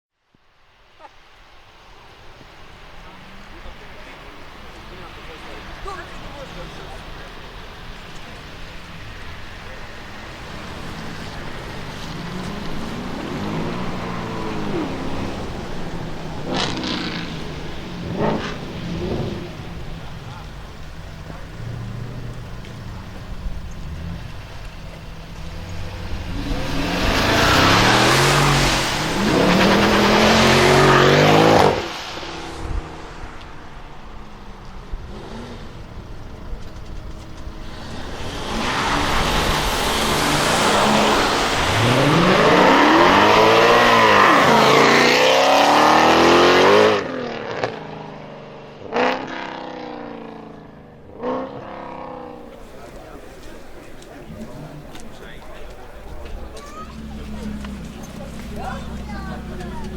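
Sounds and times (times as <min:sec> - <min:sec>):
car engine accelerating hard: 0:02.0 - 0:59.9
sharp engine revs: 0:09.4 - 0:24.3, 0:25.4 - 0:33.4, 0:37.6 - 0:48.0.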